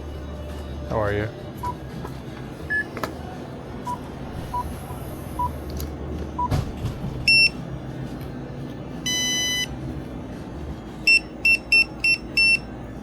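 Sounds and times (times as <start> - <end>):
loud electronic beeps: 9.1 - 9.7, 11.1 - 12.6.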